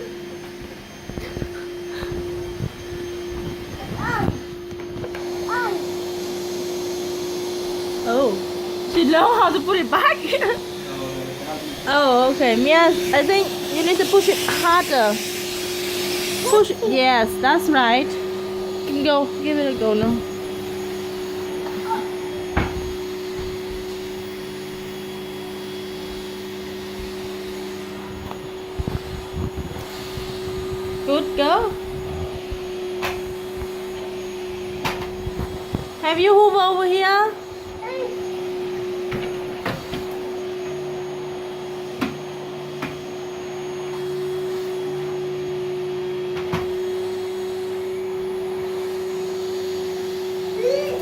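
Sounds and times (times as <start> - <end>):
vacuum cleaner running: 0.0 - 51.0
knocks on floor: 22.5 - 22.9.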